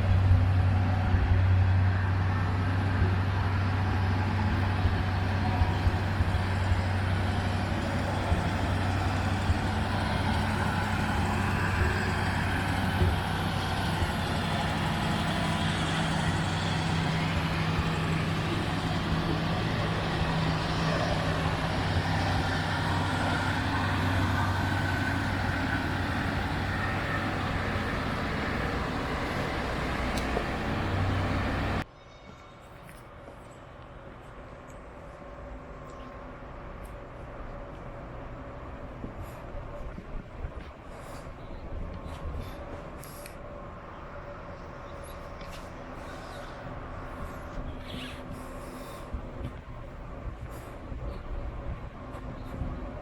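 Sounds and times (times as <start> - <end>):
car engine humming: 0.0 - 31.8.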